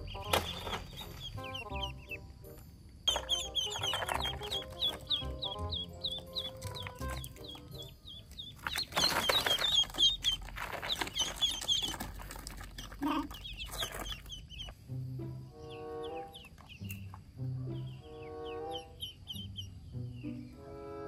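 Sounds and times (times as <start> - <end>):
ducklings peeping: 0.0 - 21.0
plastic tarp crinkling: 8.6 - 14.4.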